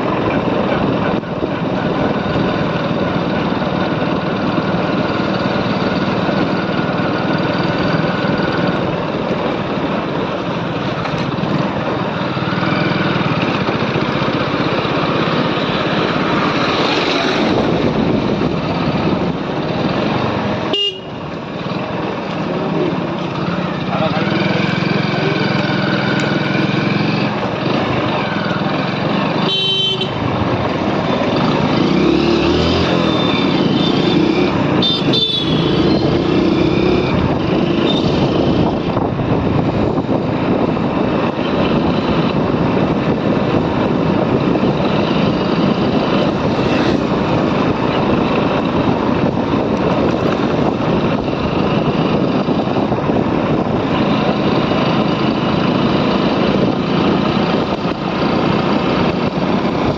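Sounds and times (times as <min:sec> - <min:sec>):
motorcycle engine: 0:00.0 - 0:59.9
wind rushing noise: 0:13.0 - 0:20.6, 0:35.6 - 0:59.9.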